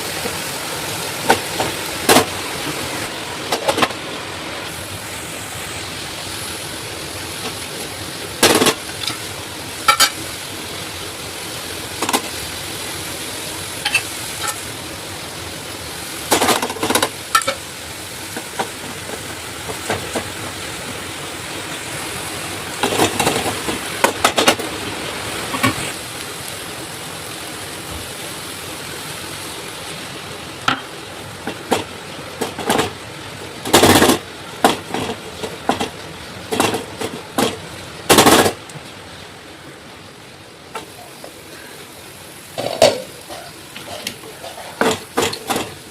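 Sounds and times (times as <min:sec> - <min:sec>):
food sizzling in a frying pan: 0:00.0 - 0:45.9
utensil scraping a pan: 0:42.6 - 0:45.8.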